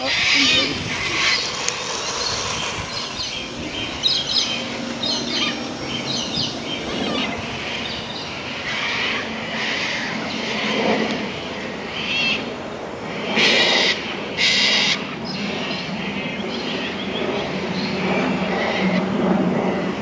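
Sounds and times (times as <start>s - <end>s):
birds chirping: 0.0s - 10.6s
wind on microphone: 0.0s - 20.0s.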